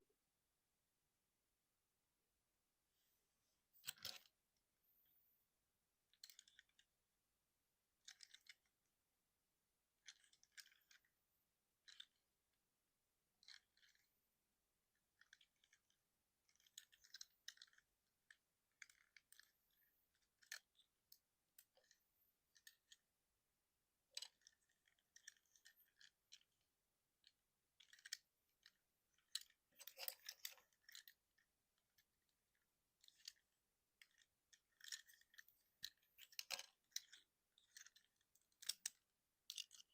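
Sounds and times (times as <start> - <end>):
plastic toy parts clicking: 3.8 - 4.4, 6.1 - 6.9, 8.0 - 8.8, 10.0 - 11.1, 11.8 - 12.4, 13.3 - 14.1, 14.9 - 23.1, 24.0 - 39.9.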